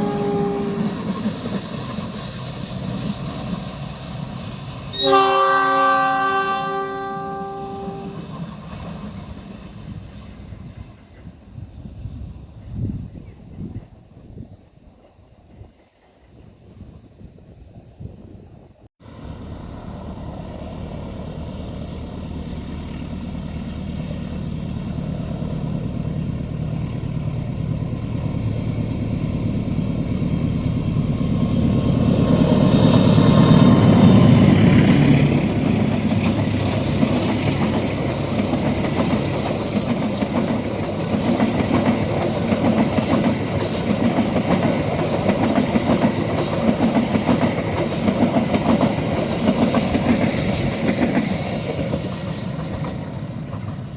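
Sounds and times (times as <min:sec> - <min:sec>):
diesel locomotive passing: 0:00.0 - 0:17.2, 0:19.0 - 0:53.9
train wheels clattering over rails: 0:21.2 - 0:53.9.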